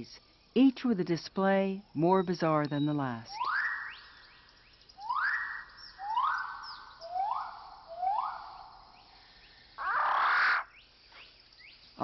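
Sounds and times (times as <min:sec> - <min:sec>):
bird calling rising note: 0:05.0 - 0:08.7
noisy bird call burst: 0:09.8 - 0:10.7.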